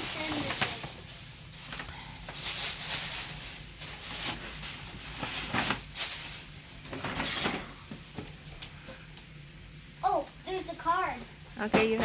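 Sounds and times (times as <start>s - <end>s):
paper rustling and crinkling: 0.0s - 7.7s.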